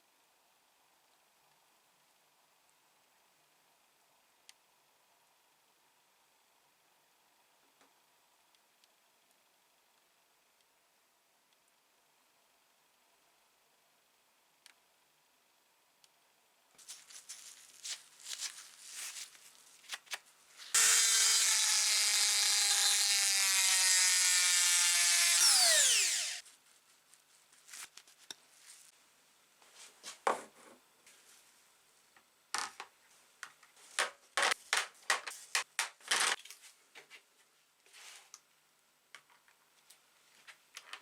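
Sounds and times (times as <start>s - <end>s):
power tool whining: 20.7s - 26.4s.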